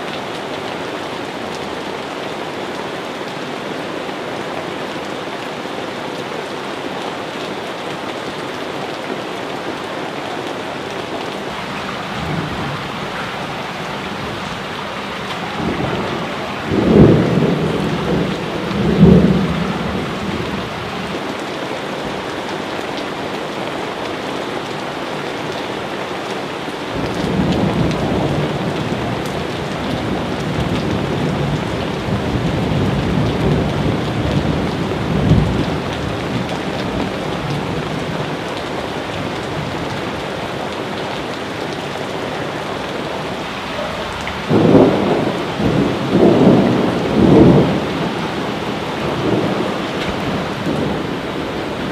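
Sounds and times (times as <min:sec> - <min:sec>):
heavy rain: 0:00.0 - 0:51.9
rolling thunder: 0:11.5 - 0:21.1, 0:43.7 - 0:51.9.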